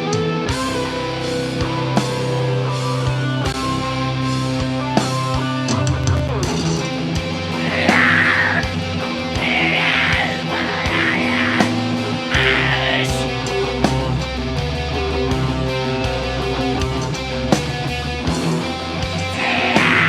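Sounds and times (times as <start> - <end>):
heavy metal band playing: 0.0 - 20.0
harsh bursts: 7.6 - 8.7, 9.4 - 13.4, 19.2 - 20.0.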